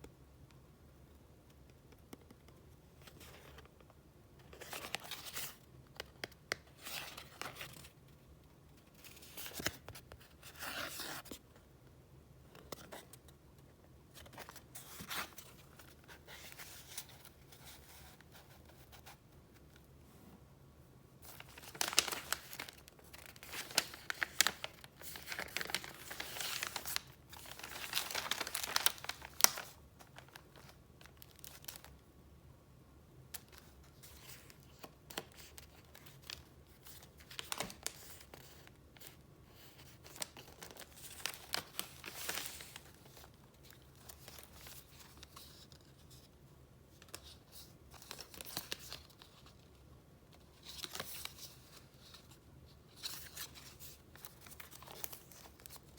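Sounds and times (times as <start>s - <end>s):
paper crinkling and rustling: 21.2s - 32.0s, 33.3s - 46.4s, 47.0s - 55.9s.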